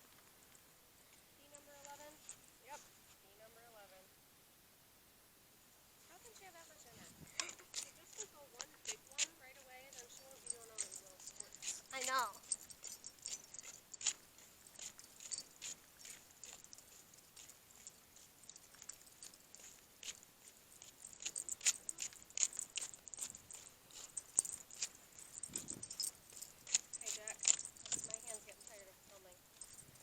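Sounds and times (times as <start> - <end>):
dog collar tags jingling: 6.2 - 30.0.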